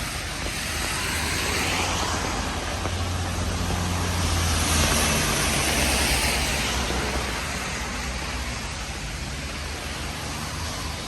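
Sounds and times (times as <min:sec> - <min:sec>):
rain hissing on wet street: 0:00.0 - 0:11.0.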